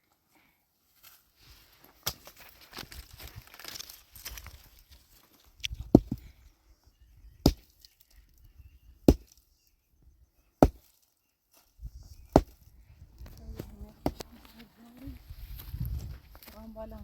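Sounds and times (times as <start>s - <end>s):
axe chopping wood: 5.9s - 6.2s, 7.4s - 7.7s, 9.0s - 9.4s, 10.6s - 10.9s, 12.3s - 12.6s, 14.0s - 14.3s.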